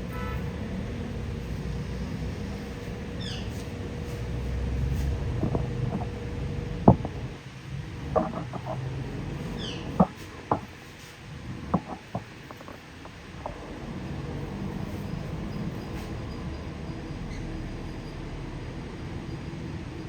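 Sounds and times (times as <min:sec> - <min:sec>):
sharp clicks and taps: 0:06.9 - 0:07.3, 0:08.2 - 0:08.9.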